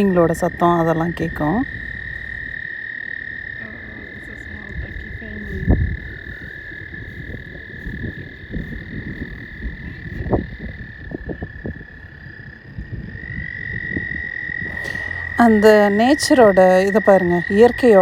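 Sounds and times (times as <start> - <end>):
frogs trilling: 0.0 - 18.0
low thumps and rumbles: 12.8 - 18.0.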